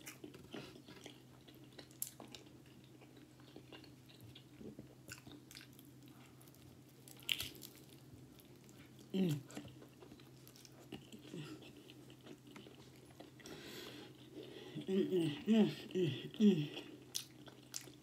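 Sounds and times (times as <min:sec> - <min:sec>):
wet chewing with crunches: 0:00.0 - 0:13.5, 0:16.8 - 0:18.0.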